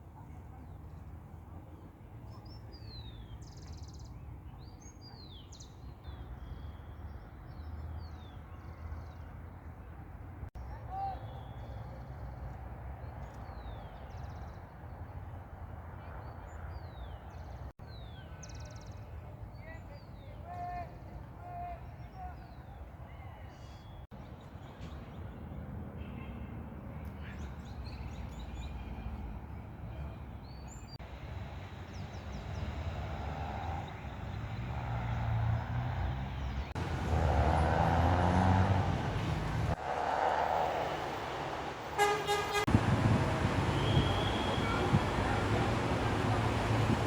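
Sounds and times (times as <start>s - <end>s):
road traffic rumble: 24.2s - 47.0s
heavy vehicle approaching: 32.6s - 47.0s
songbirds whistling and trilling: 43.4s - 46.1s.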